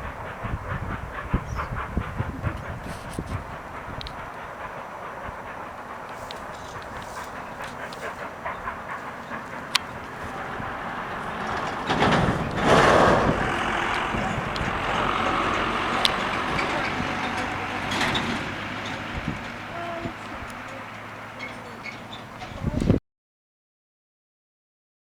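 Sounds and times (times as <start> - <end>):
rushing noise: 0.0 - 22.5
wheels clicking on rails: 0.0 - 23.0.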